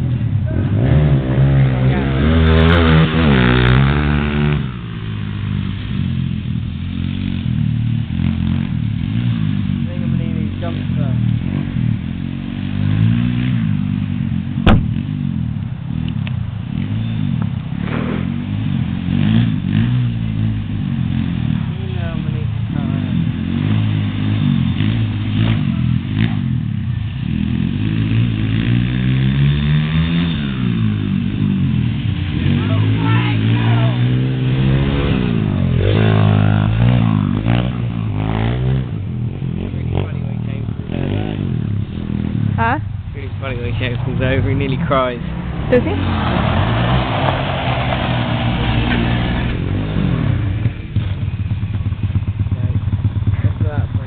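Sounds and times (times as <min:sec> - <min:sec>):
off-road vehicle engine revving: 0:00.0 - 0:54.0
sharp knock: 0:14.6 - 0:15.0.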